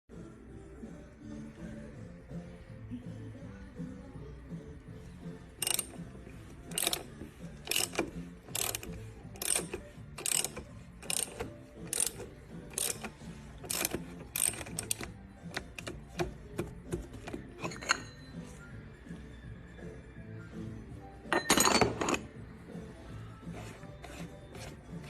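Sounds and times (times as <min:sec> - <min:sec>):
faint background music: 0:00.1 - 0:25.0
sharp metallic ratcheting clicks: 0:05.6 - 0:16.2.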